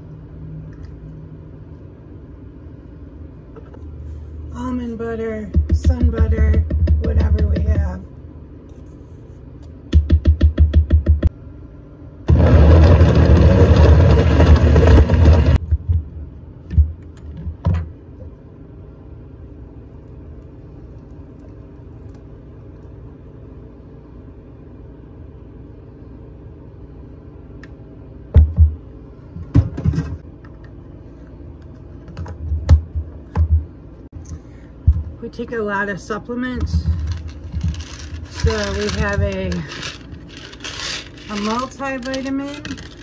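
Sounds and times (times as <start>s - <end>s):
blender running: 12.3s - 15.6s, 37.1s - 43.0s.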